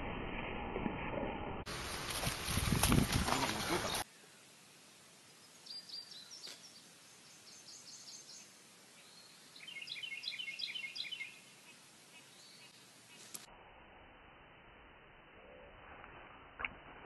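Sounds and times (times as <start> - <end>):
outdoor background hiss: 1.7 - 15.8
bird chirping: 5.2 - 13.5.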